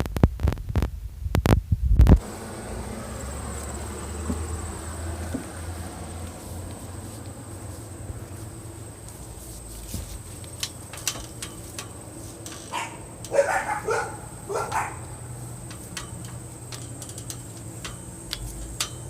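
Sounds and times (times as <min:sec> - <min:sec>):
faint clicks: 0:14.6 - 0:19.0.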